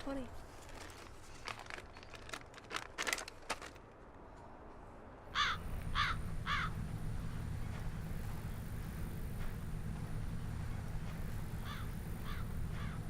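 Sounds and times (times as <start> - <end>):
bird cawing harshly: 5.3 - 6.8, 11.6 - 13.0
low steady rumble: 5.3 - 13.0.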